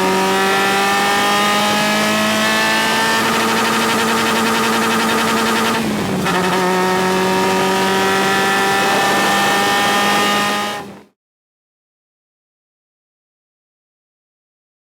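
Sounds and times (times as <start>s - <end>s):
race car engine accelerating: 0.0s - 11.1s.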